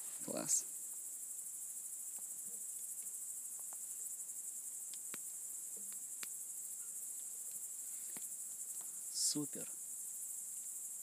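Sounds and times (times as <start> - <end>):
crickets chirping: 0.0 - 11.0
campfire crackling pops: 2.1 - 3.9, 4.8 - 6.4.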